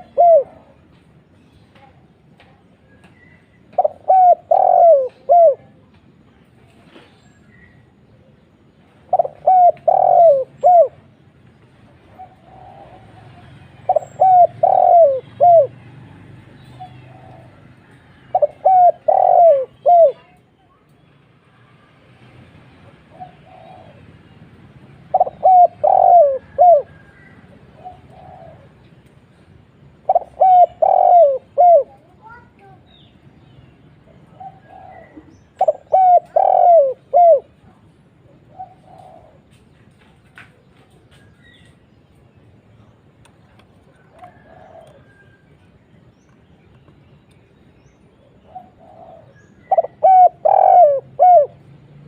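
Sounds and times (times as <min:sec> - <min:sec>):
dove cooing: 0:00.0 - 0:00.8, 0:03.7 - 0:05.8, 0:09.0 - 0:11.1, 0:12.1 - 0:15.9, 0:16.7 - 0:20.4, 0:23.1 - 0:24.2, 0:24.9 - 0:29.0, 0:29.9 - 0:32.5, 0:34.3 - 0:37.7, 0:38.3 - 0:39.6, 0:43.8 - 0:45.5, 0:48.2 - 0:51.7
soft distant coos: 0:00.0 - 0:52.0.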